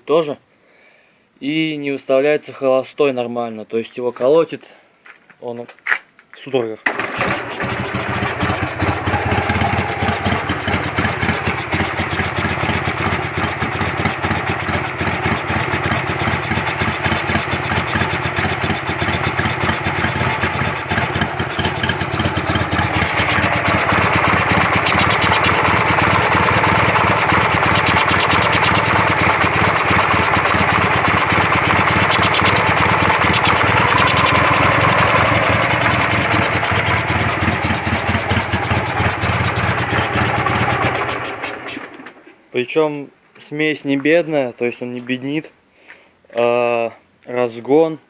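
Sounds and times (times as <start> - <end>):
motorcycle engine idling unevenly: 6.9 - 42.2
carburettor whistle: 22.7 - 37.4.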